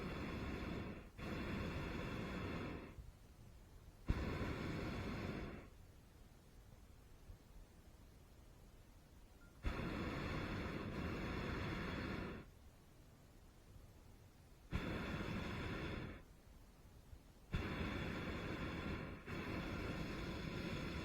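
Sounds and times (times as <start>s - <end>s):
propane burner blasts: 0.0s - 3.0s, 4.0s - 5.8s, 9.6s - 12.5s, 14.7s - 16.3s, 17.5s - 21.0s.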